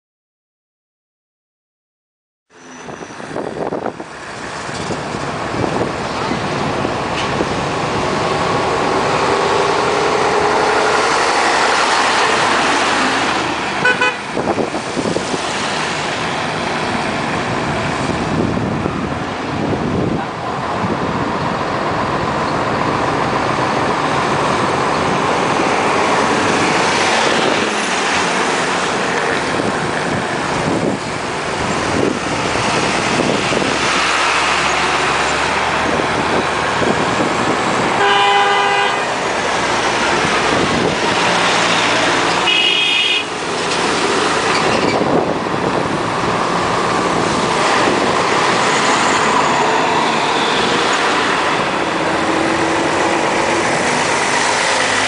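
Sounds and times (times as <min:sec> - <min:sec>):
road traffic: 0:02.5 - 0:55.0
vehicle horn: 0:13.8 - 0:14.3, 0:38.0 - 0:39.2, 0:42.4 - 0:43.3.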